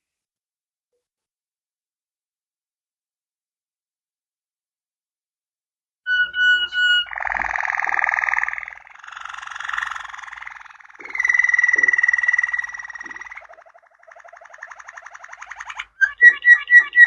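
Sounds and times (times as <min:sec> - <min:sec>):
canary singing: 0:06.1 - 0:17.0.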